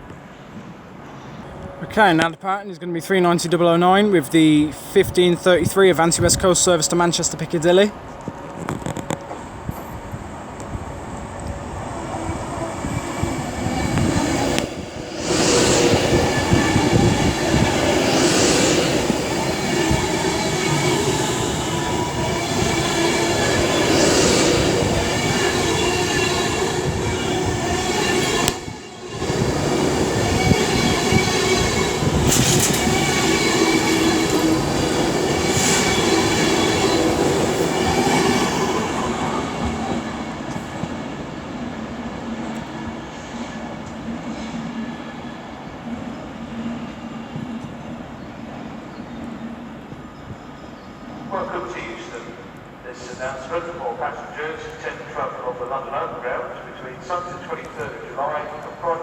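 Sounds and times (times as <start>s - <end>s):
electric train hum: 7.9s - 43.0s
train wheels squealing: 12.2s - 40.9s.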